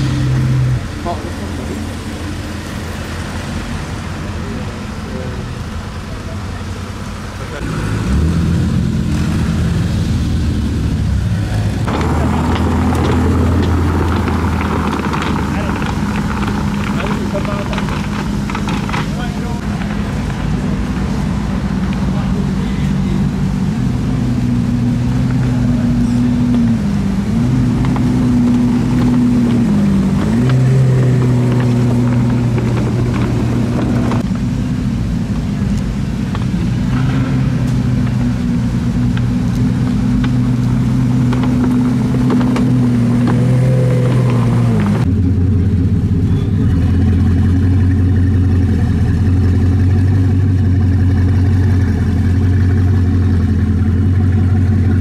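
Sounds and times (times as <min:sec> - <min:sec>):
car engine idling: 0:00.0 - 0:55.0
deep car engine idling: 0:00.0 - 0:55.0.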